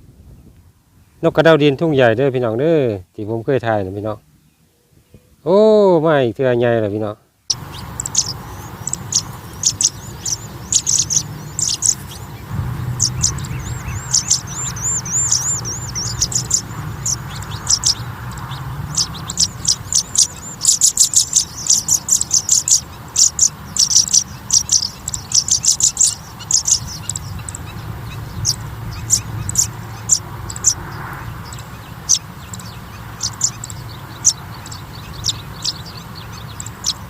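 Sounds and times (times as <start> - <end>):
nestlings peeping: 6.8 - 37.0.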